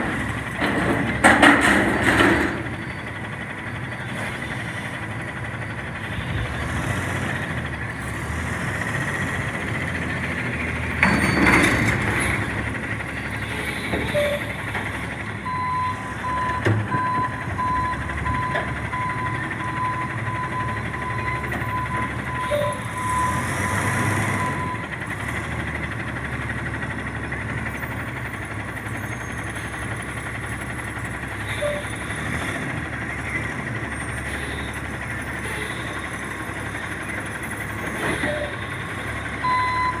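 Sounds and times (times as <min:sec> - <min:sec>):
garbage truck engine running: 0:00.0 - 0:40.0
backup alarm beeping: 0:15.5 - 0:23.4, 0:39.4 - 0:40.0.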